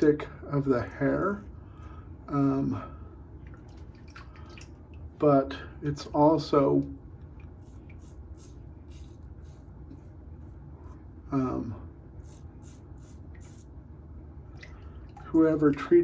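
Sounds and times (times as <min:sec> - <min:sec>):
shaving brush swishing lather: 0:07.6 - 0:11.0, 0:12.2 - 0:13.7.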